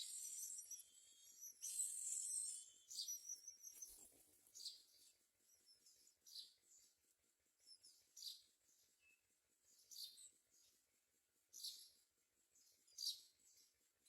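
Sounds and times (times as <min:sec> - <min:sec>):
nestlings squeaky calls: 0:00.0 - 0:04.7.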